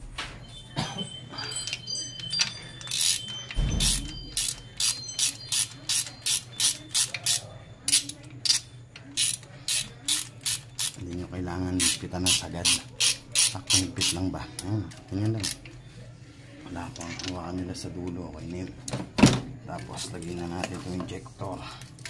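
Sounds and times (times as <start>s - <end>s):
ratchet wrench clicking: 2.4s - 11.0s, 11.8s - 14.2s, 15.4s - 15.6s.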